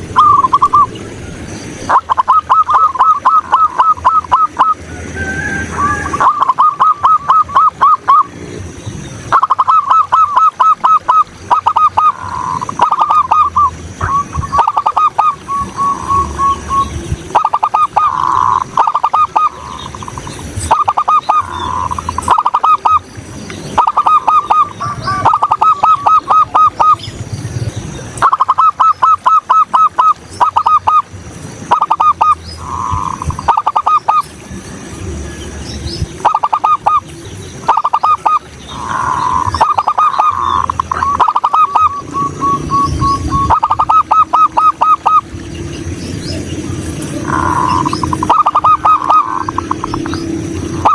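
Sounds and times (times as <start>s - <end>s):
dove cooing: 0.0s - 1.0s, 1.9s - 8.4s, 9.3s - 23.1s, 23.7s - 31.1s, 31.7s - 34.2s, 36.0s - 50.9s.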